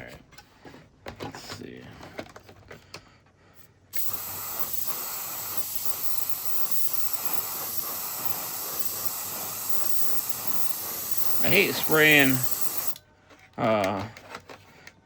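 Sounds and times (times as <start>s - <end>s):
spray paint hissing: 4.0s - 13.0s.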